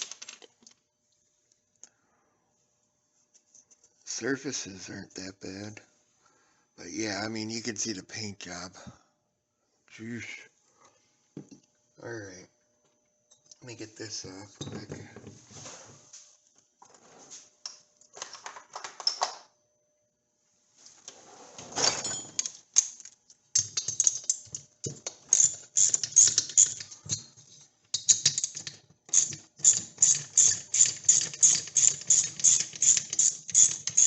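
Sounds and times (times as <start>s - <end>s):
ratchet wrench clicking: 25.3s - 26.9s, 28.0s - 34.0s.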